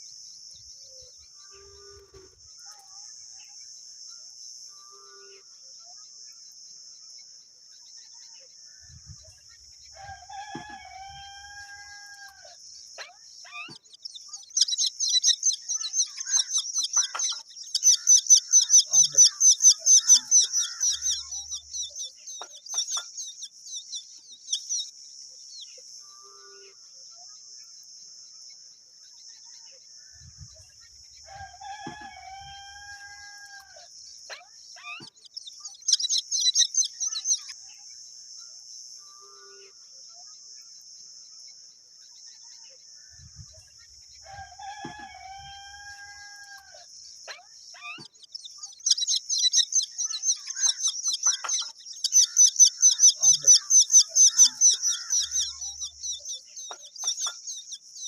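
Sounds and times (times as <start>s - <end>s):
rooster crowing: 10.0s - 12.6s, 31.3s - 33.8s, 44.2s - 46.8s
baby bird chirping: 13.0s - 24.9s, 34.2s - 37.6s, 47.2s - 58.0s
high insect drone: 35.8s - 58.0s.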